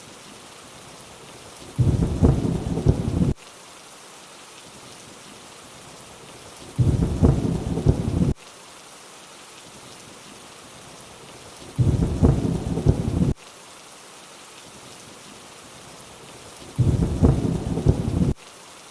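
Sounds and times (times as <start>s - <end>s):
steady rainfall hiss: 0.0s - 18.9s
rolls of thunder: 1.8s - 3.4s, 6.8s - 8.4s, 11.8s - 13.4s, 16.8s - 18.4s.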